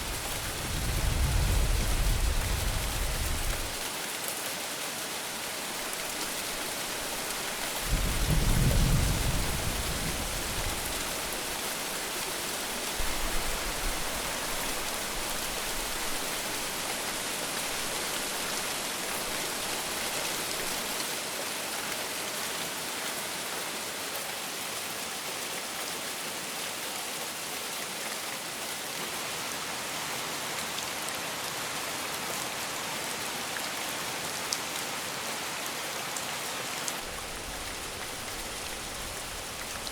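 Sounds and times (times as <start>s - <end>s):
low rumble of thunder: 0.0s - 3.8s, 7.8s - 11.5s
heavy rain: 0.0s - 39.9s.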